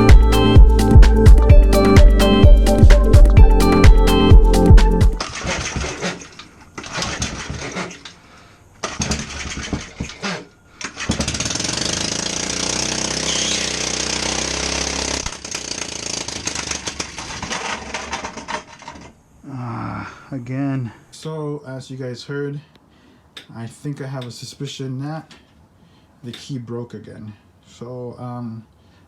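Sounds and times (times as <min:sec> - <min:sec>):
small engine cranking: 0:05.2 - 0:08.2, 0:08.8 - 0:19.2.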